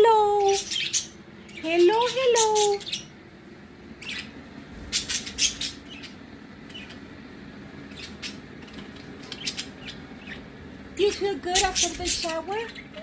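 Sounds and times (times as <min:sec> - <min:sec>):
faint steady hum: 0:00.0 - 0:13.0
budgerigars chirping: 0:00.4 - 0:03.1, 0:04.0 - 0:07.0, 0:07.9 - 0:10.5, 0:11.1 - 0:13.0.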